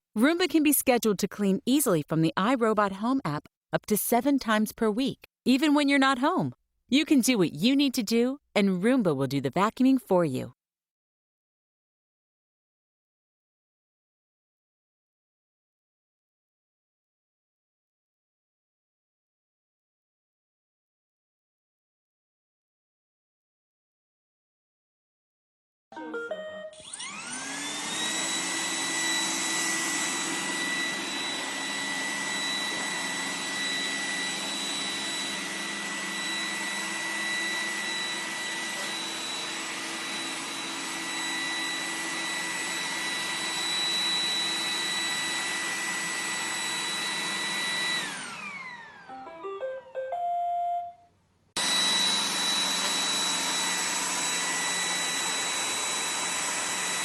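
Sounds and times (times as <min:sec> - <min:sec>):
robot vacuum motor whining: 0:26.8 - 0:49.1, 0:51.6 - 0:57.0.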